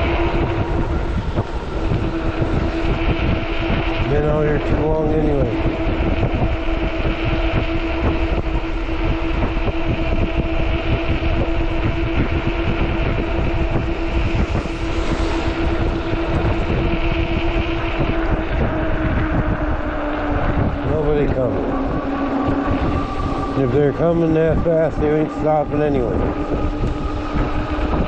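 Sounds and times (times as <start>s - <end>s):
electric motor whine: 0.0s - 28.0s
wind buffeting microphone: 0.0s - 28.0s
vehicle rushing past: 12.9s - 28.0s.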